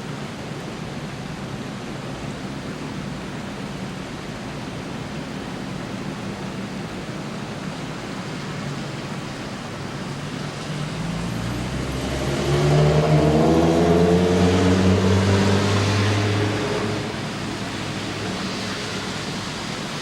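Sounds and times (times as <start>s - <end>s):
steady rain hiss: 0.0s - 20.0s
car driving past: 10.4s - 19.7s.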